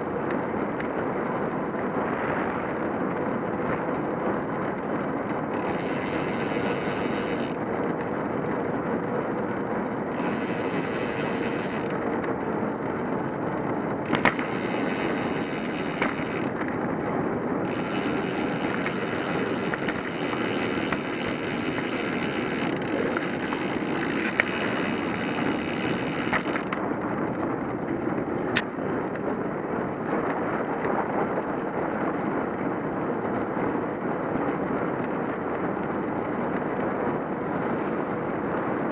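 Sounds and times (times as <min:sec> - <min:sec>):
wind on microphone: 0:00.0 - 0:38.9
sharp clicks: 0:14.1 - 0:16.7, 0:17.7 - 0:26.8.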